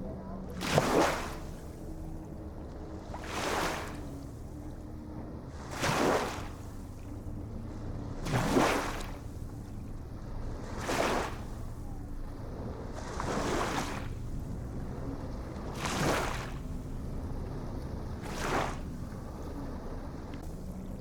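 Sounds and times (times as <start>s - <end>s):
low rumble of surf: 0.0s - 21.0s
small waves breaking: 0.0s - 21.0s.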